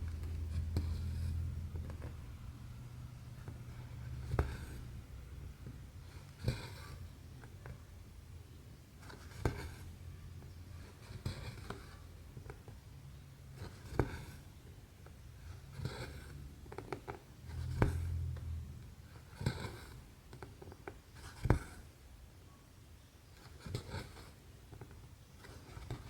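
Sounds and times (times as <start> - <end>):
low steady hum: 0.0 - 20.3.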